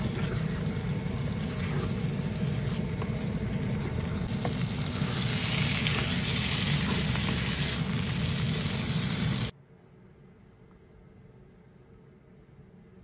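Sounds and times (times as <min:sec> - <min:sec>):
food sizzling in a wok: 0:00.0 - 0:03.4, 0:04.3 - 0:09.5
wooden spatula scraping: 0:00.0 - 0:09.5.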